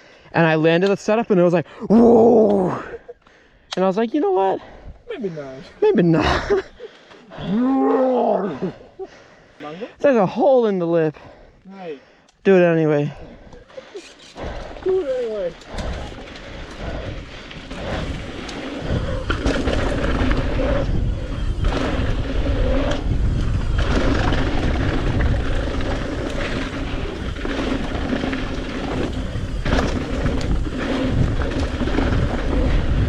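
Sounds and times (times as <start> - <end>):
bike tyres rolling on dirt: 13.7 - 33.0
wind buffeting microphone: 14.4 - 33.0.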